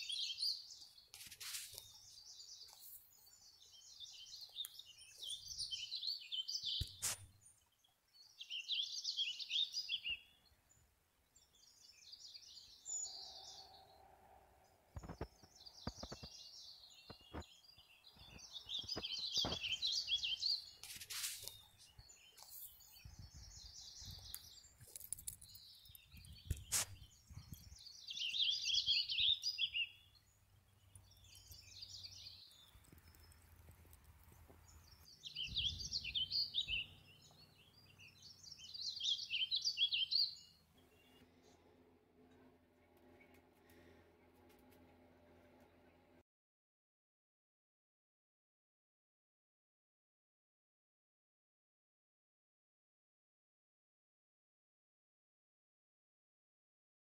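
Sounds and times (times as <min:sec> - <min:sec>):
songbird high chirps: 0:00.0 - 0:14.0, 0:15.0 - 0:41.3.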